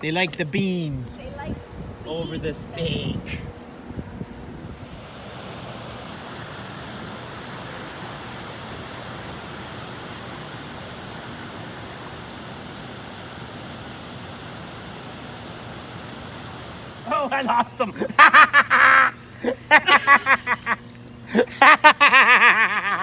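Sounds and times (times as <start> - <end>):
river water rushing: 4.8 - 17.7.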